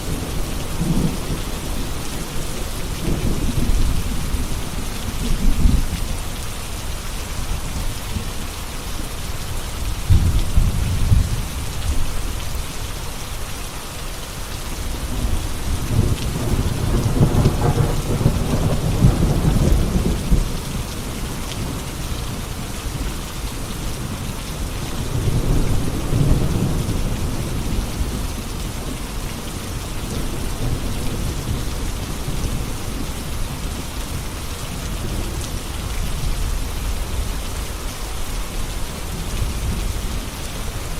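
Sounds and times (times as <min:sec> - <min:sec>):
heavy rain: 0:00.0 - 0:40.9
rolling thunder: 0:15.2 - 0:20.8.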